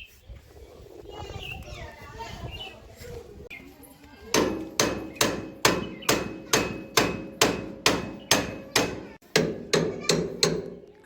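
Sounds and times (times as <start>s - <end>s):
hammer striking metal: 4.4s - 10.8s.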